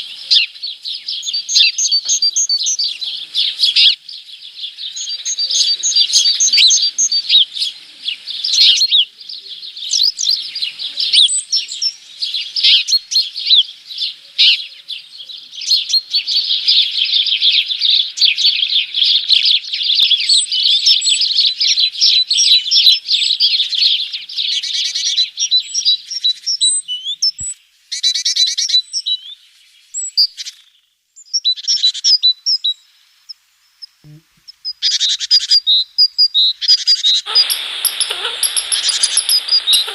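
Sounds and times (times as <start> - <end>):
small birds chirping and twittering: 0.0 - 39.9
bird trills: 36.9 - 39.9.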